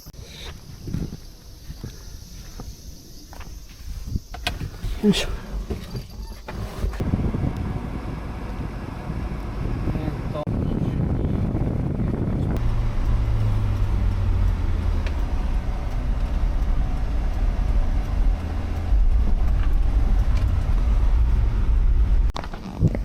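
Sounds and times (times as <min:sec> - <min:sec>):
vehicle engine and road rumble: 0:00.0 - 0:23.0
low hum: 0:05.3 - 0:22.4.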